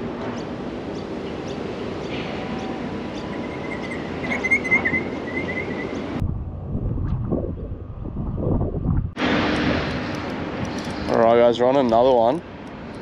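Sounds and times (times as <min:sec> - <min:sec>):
rushing background noise: 0:00.0 - 0:13.0
bird chirping: 0:00.4 - 0:06.2.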